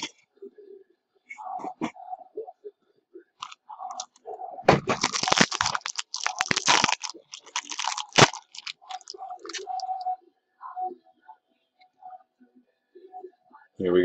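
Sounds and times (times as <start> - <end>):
packaging crinkling as torn open: 4.8 - 9.8.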